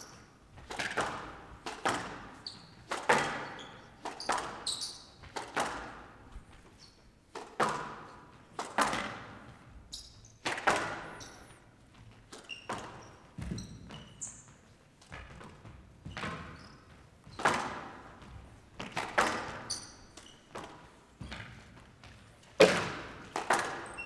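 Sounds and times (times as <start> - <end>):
shoes squeaking on court floor: 0.0 - 24.0
squash ball cracking off rackets: 22.5 - 24.0.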